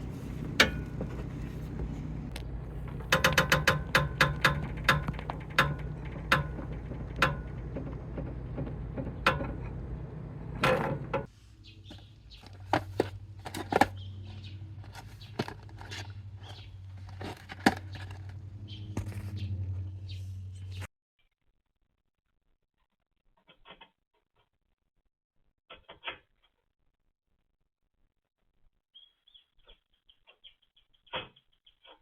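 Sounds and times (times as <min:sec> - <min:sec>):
sharp clicks and knocks: 0:00.0 - 0:11.3
steady low hum: 0:00.0 - 0:20.9.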